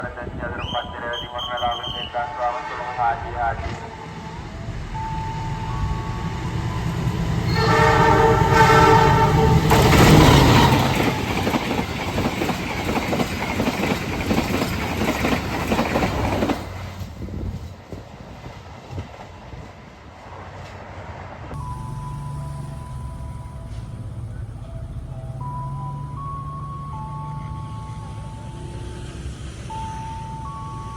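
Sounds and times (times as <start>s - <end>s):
train rushing past with wheel clatter: 0.0s - 30.9s
train horn: 1.1s - 4.3s, 7.4s - 11.2s
train running rumble: 1.5s - 30.9s.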